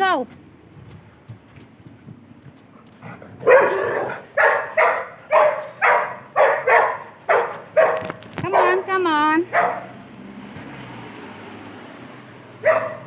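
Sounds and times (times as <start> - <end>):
dog barking: 3.4 - 10.0, 12.6 - 13.0.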